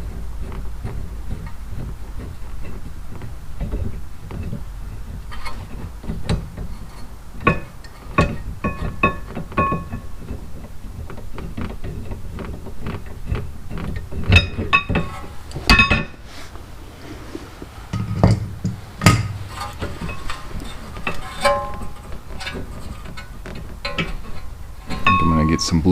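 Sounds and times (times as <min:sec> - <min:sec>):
metal tools clinking and knocking: 0:07.5 - 0:10.0, 0:14.3 - 0:16.2, 0:17.9 - 0:25.8.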